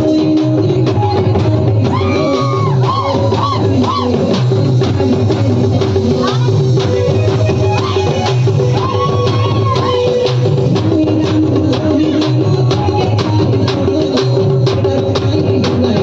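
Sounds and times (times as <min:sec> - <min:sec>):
steady drum beat: 0:00.0 - 0:16.0
held tone: 0:02.0 - 0:10.6.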